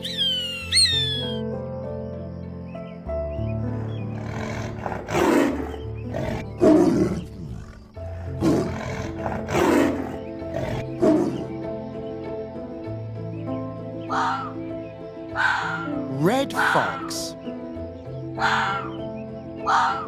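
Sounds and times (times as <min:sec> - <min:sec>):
background music: 0:00.0 - 0:20.0
animal roaring: 0:04.2 - 0:11.3.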